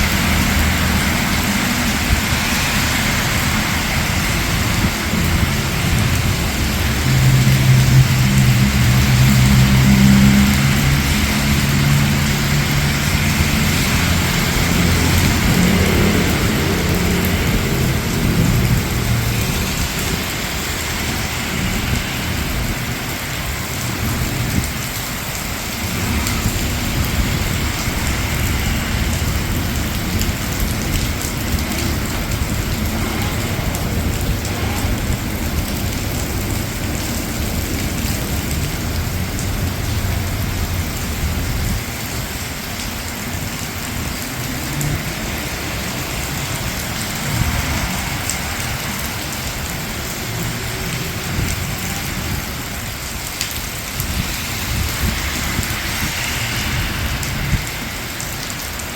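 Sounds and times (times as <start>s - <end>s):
low rumble: 0.0s - 42.5s
rain on hard surfaces: 0.0s - 58.9s.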